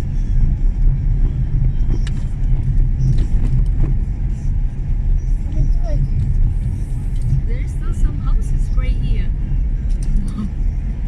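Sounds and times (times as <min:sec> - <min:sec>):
engine and tyre rumble: 0:00.0 - 0:11.0
car knocks and rattles: 0:00.5 - 0:04.2.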